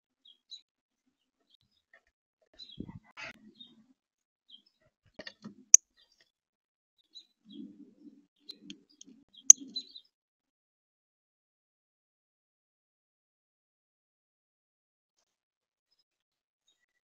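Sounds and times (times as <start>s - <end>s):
small birds chirping: 7.1s - 10.1s.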